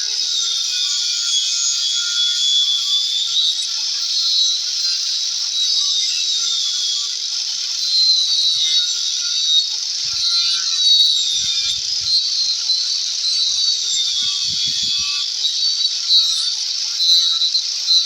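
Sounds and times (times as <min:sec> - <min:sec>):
power tool cutting wood: 0:07.9 - 0:17.6.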